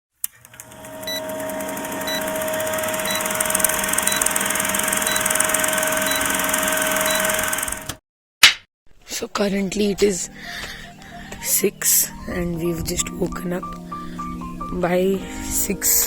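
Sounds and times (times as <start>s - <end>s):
whirring hum: 0.3s - 8.0s
short electronic beep: 4.0s - 4.3s, 7.0s - 7.4s.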